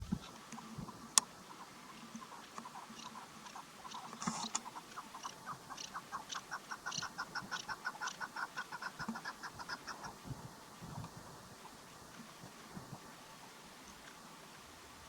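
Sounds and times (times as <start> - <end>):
partridge clucking call: 0.1 - 10.2.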